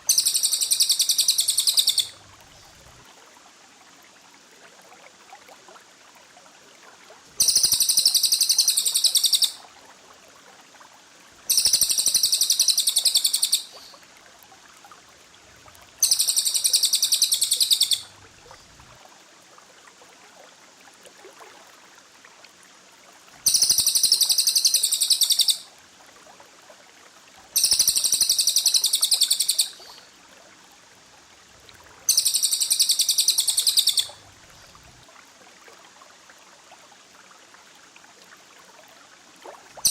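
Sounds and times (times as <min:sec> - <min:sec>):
faint steady hiss: 0:00.0 - 0:39.9
songbird trilling: 0:00.1 - 0:02.2, 0:07.4 - 0:09.6, 0:11.5 - 0:13.9, 0:16.0 - 0:18.1, 0:23.5 - 0:25.7, 0:27.6 - 0:30.0, 0:32.1 - 0:34.2.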